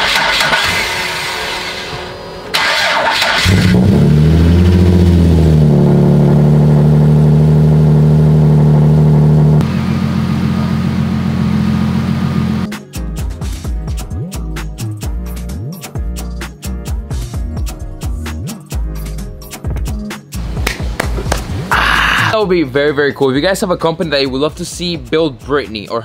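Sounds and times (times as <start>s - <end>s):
car engine starting and idling: 0.0s - 12.7s.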